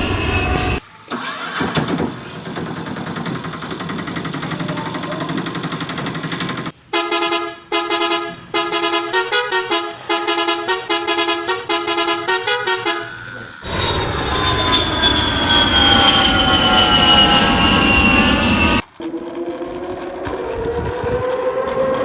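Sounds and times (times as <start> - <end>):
short electronic horn beeps: 7.0 - 14.8
toy buzzy engine noise: 12.5 - 13.7.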